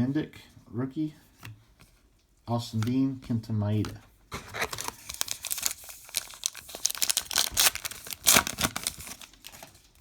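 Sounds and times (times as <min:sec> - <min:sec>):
wrapper tearing and crinkling: 0:04.5 - 0:10.0.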